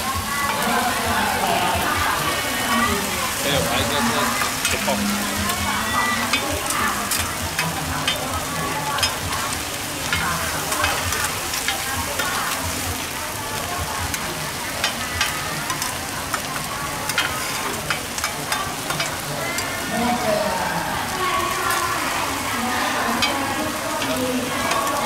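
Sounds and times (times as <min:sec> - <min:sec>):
frying hiss on griddle: 0:00.0 - 0:25.0
metal utensils scraping pan: 0:01.8 - 0:12.7, 0:14.1 - 0:19.9.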